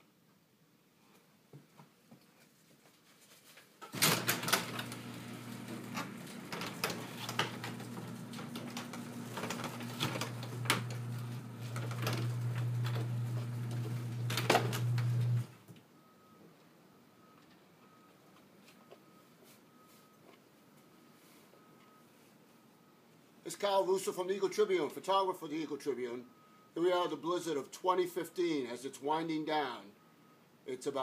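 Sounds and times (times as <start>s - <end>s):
motor running: 4.4s - 15.5s.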